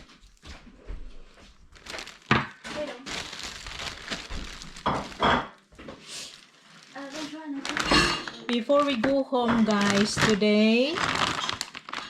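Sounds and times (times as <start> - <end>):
shopping bag rustling: 1.6 - 5.4, 6.0 - 12.0
items knocking on a surface: 1.8 - 3.0, 4.2 - 6.0, 7.7 - 10.5.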